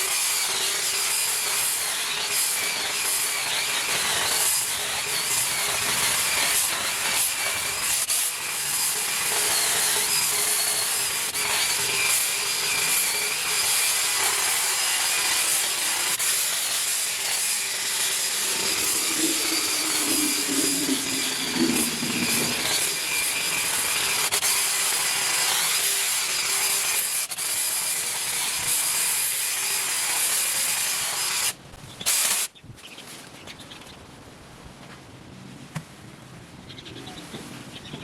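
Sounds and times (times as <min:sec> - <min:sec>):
garden power tool running: 0:17.9 - 0:24.4.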